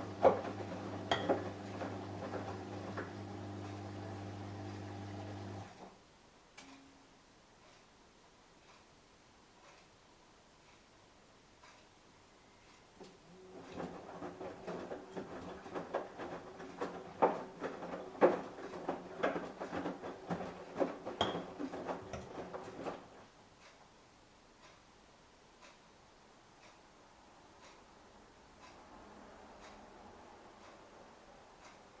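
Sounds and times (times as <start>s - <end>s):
washing machine motor hum: 0.0s - 5.8s, 13.0s - 23.3s.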